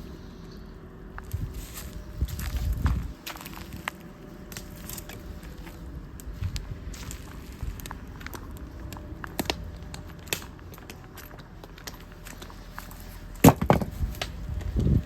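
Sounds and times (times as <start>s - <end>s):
campfire crackling and popping: 3.2s - 13.0s.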